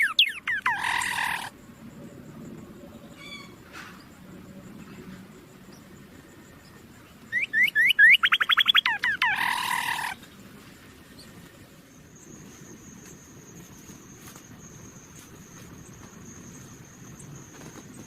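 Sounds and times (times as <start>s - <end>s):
bird chirping and trilling: 0.0s - 1.5s, 7.3s - 10.2s
harsh raspy bird call: 0.0s - 1.5s, 7.4s - 10.2s.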